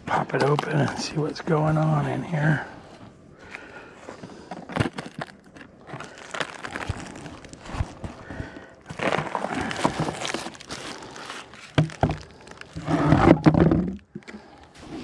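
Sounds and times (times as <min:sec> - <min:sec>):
plastic lid scraping and rubbing: 0:08.9 - 0:14.1.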